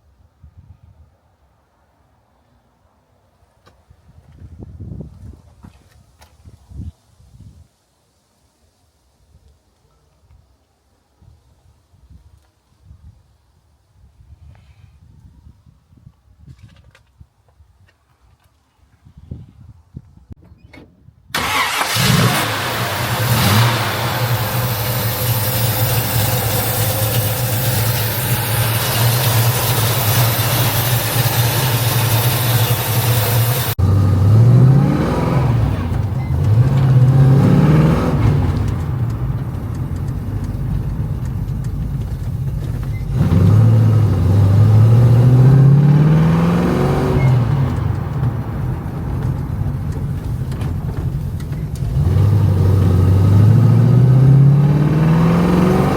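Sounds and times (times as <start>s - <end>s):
car engine running with hiss: 21.4s - 34.3s, 35.1s - 44.9s.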